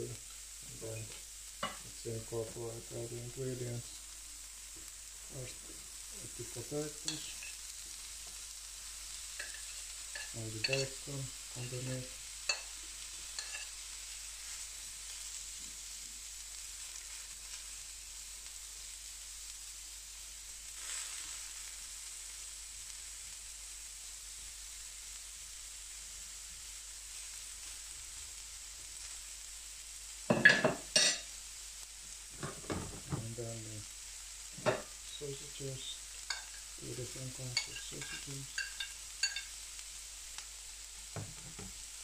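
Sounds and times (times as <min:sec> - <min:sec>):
potatoes and bacon sizzling: 0:00.0 - 0:42.0
spatula clattering and scraping: 0:09.4 - 0:11.0, 0:13.4 - 0:13.7, 0:37.6 - 0:39.5.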